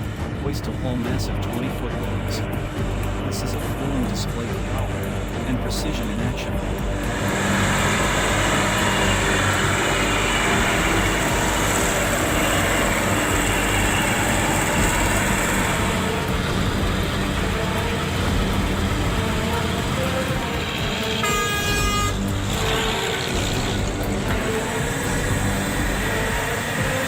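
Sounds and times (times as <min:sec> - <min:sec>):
truck engine running: 0:00.0 - 0:27.0
truck horn: 0:06.6 - 0:27.0.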